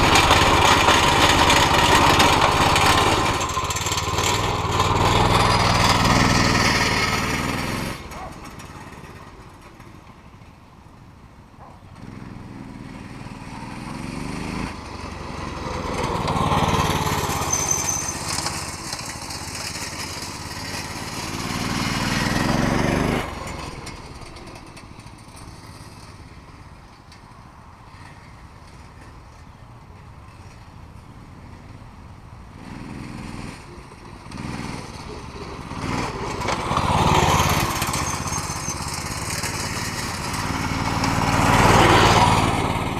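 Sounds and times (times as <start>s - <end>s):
mini bike engine revving: 0.0s - 10.1s, 11.9s - 27.2s, 32.5s - 42.9s.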